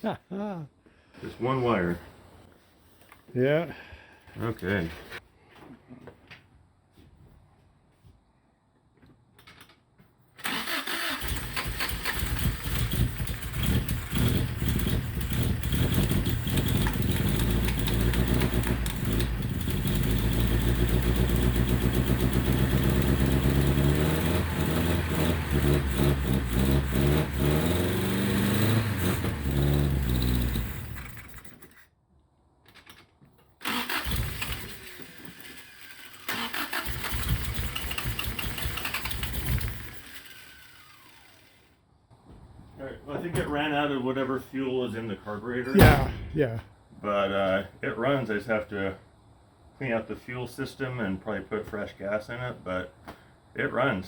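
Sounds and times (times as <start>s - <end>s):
car engine starting and revving: 10.4s - 31.5s, 33.6s - 41.3s.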